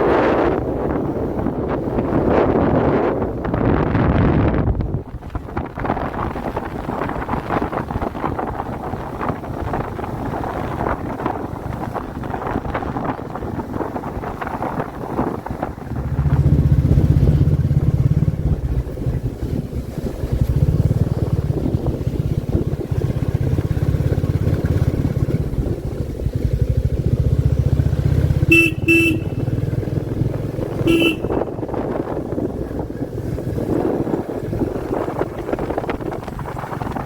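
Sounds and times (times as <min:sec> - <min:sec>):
motorcycle engine thumping: 0:28.0 - 0:32.8
horn short beeps: 0:28.5 - 0:29.5, 0:30.8 - 0:31.6.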